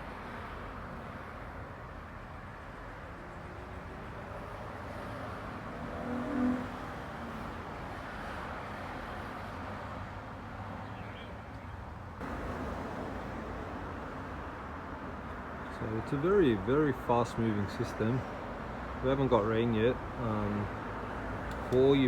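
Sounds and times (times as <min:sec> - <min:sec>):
road traffic hum: 0:00.0 - 0:22.0
vehicle pitched sound: 0:19.0 - 0:22.0.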